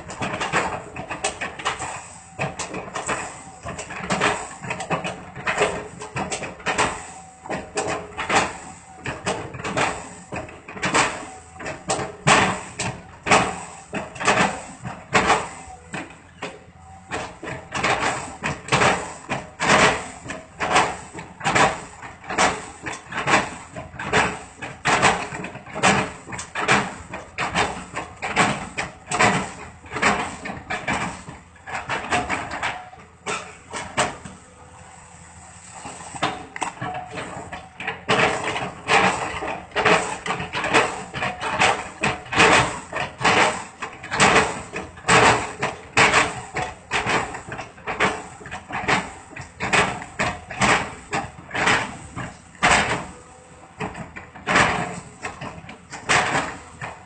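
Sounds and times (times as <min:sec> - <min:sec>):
excavator bucket chopping wood: 0:00.0 - 0:34.5, 0:35.8 - 0:57.0.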